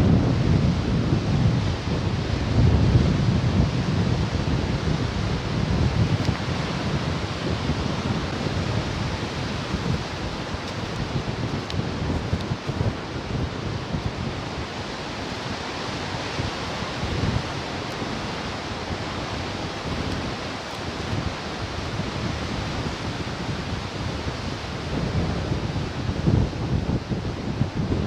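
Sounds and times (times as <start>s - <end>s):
wind buffeting microphone: 0.0s - 28.0s
ocean surf hissing: 6.2s - 25.0s.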